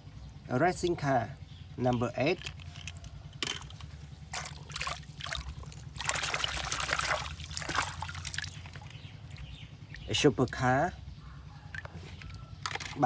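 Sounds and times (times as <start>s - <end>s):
steady low hum: 0.0s - 13.0s
water trickling and splashing: 3.5s - 10.9s.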